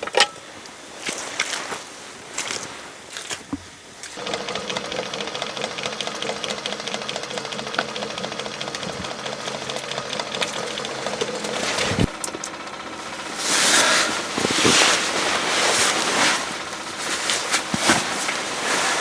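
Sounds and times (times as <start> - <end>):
small motor ticking: 4.2 - 18.7.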